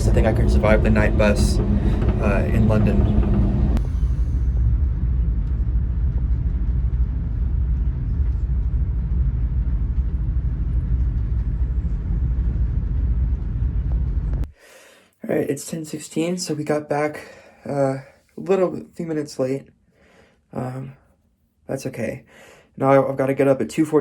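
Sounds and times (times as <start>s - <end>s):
electric train rumbling: 0.0s - 14.6s.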